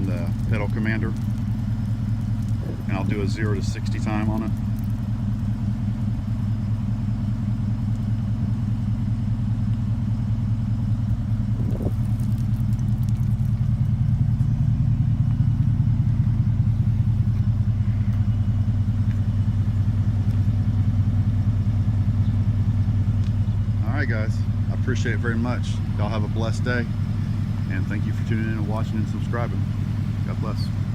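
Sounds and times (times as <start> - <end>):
pickup truck engine idling: 0.0 - 30.9.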